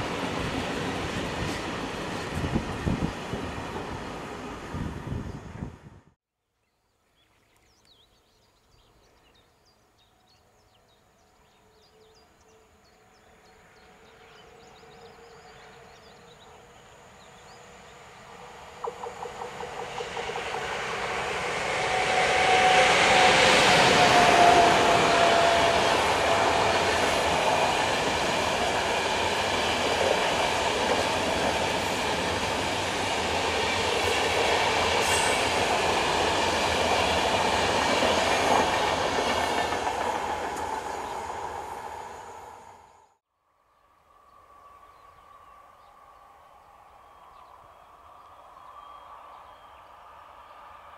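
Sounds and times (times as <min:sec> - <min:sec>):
train wheels rumbling on rails: 0:00.0 - 0:05.8, 0:17.3 - 0:42.7
rhythmic clicks over rail joints: 0:18.8 - 0:21.3.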